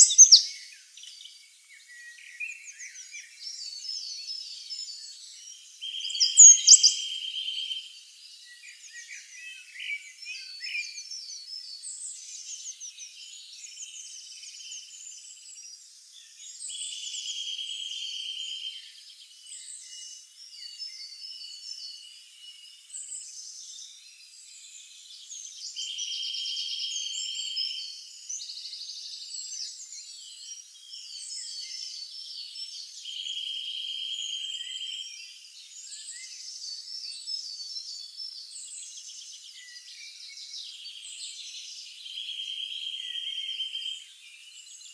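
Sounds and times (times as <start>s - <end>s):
buzzy bird trill: 0.0s - 0.4s, 6.2s - 6.9s
songbirds chirping: 0.0s - 44.9s.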